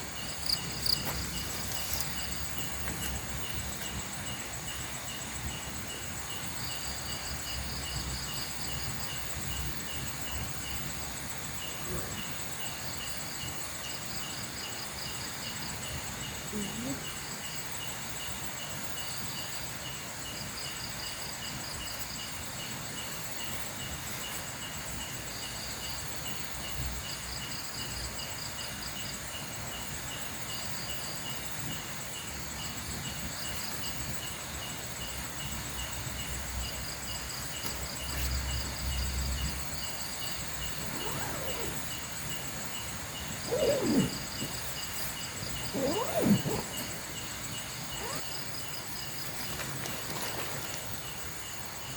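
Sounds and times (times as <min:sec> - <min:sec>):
crickets chirping: 0:00.0 - 0:51.9
insect trills: 0:00.0 - 0:51.9
pitch-sliding calls: 0:40.8 - 0:41.9, 0:43.5 - 0:47.2, 0:47.9 - 0:48.3.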